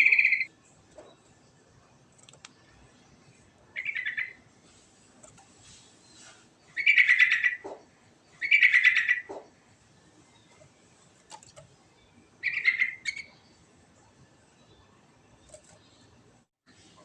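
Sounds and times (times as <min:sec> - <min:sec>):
bulbul singing: 0:00.0 - 0:01.5, 0:02.4 - 0:04.5, 0:06.0 - 0:09.6, 0:10.2 - 0:13.7.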